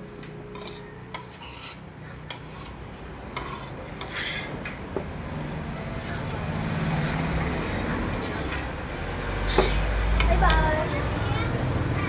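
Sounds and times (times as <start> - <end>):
cutlery clinking on a plate: 0.6 - 2.8, 3.4 - 4.2.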